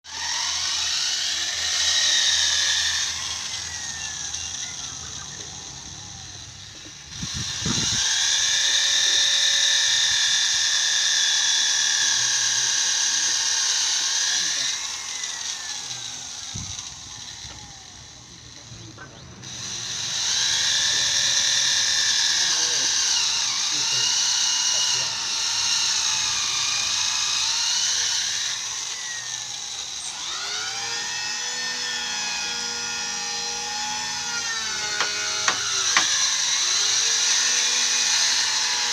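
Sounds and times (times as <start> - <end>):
electric drill boring into wood: 0.0 - 38.9
dull knocks: 35.0 - 36.1.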